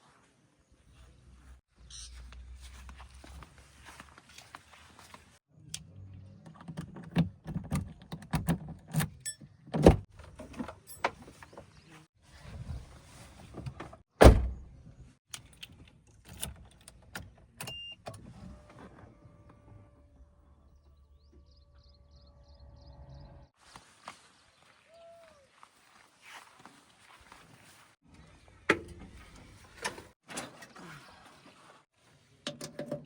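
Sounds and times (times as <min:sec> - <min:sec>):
diesel engine droning: 0:18.5 - 0:23.5.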